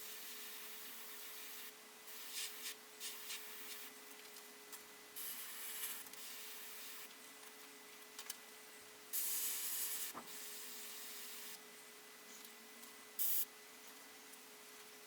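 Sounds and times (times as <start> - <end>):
airbrush spraying hiss: 0.0 - 3.9, 5.2 - 7.1, 9.2 - 11.6, 13.2 - 13.5
faint steady hum: 0.0 - 15.0.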